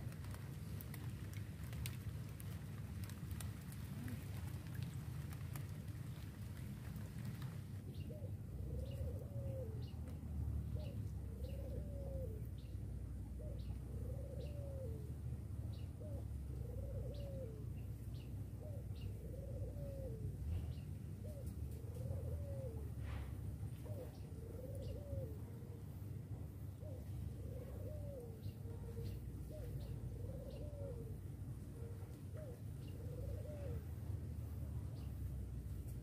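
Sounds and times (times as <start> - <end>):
bird cooing: 6.9 - 10.1, 10.7 - 35.2
steady low rumble: 22.8 - 36.0
small birds chirping: 23.7 - 31.1, 31.8 - 36.0.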